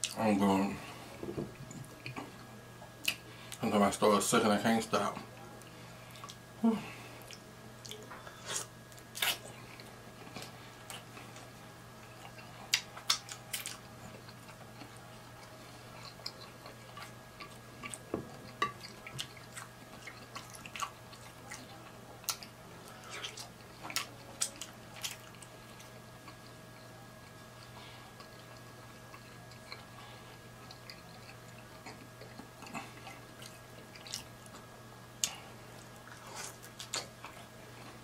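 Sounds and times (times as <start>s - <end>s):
faint steady hum: 0.0s - 38.0s
chewing with wet mouth clicks: 7.2s - 11.1s, 12.0s - 30.0s, 30.6s - 37.9s.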